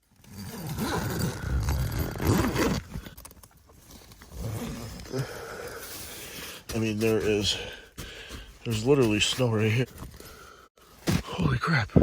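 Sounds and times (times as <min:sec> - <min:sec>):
zipper dragged open: 0:00.2 - 0:03.1, 0:04.3 - 0:05.1.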